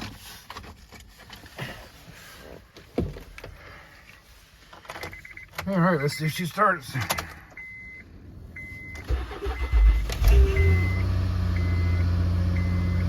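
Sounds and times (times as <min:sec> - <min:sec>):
car engine cranking and idling: 0:00.0 - 0:13.0
dashboard warning chime: 0:07.6 - 0:13.0.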